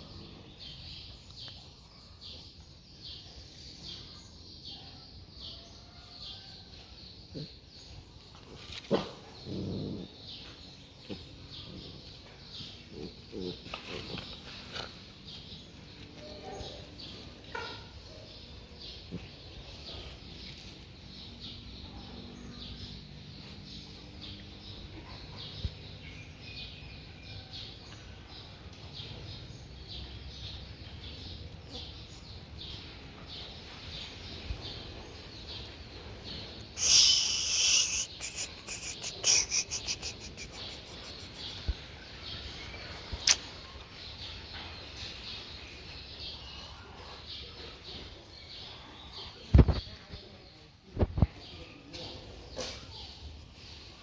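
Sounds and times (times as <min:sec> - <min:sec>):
loud hissing burst: 0:36.8 - 0:40.3
high chirps: 0:36.8 - 0:41.4.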